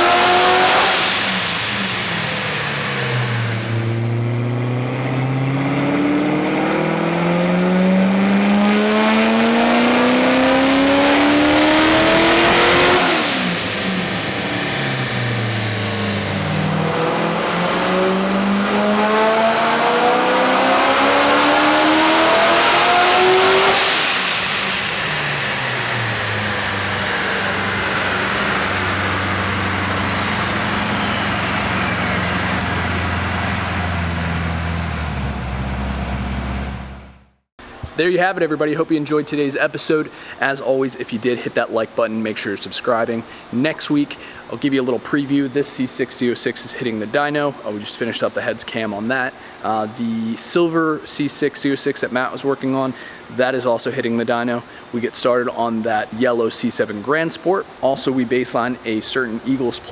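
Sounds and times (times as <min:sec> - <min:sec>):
car engine revving: 0:00.0 - 0:37.3.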